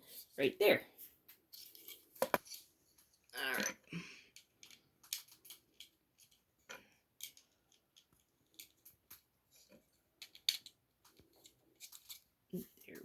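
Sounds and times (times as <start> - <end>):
plastic bricks clicking and rattling: 3.3 - 13.0.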